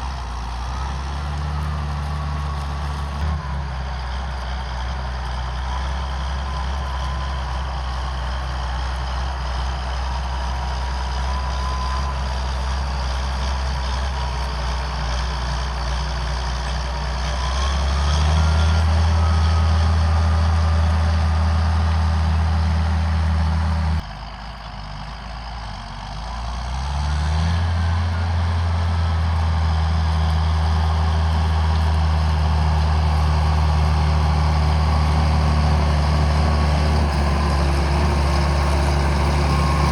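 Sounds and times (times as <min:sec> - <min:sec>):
tractor diesel engine under load: 0:00.0 - 0:39.9
whine: 0:27.6 - 0:39.9.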